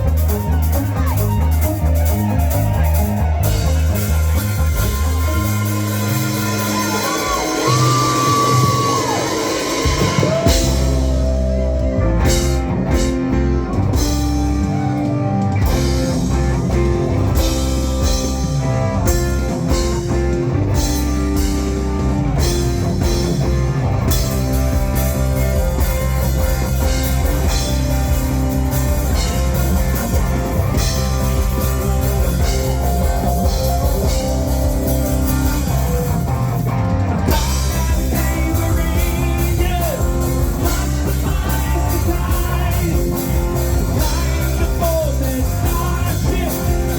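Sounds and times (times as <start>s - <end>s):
live rock band playing: 0.0s - 46.9s.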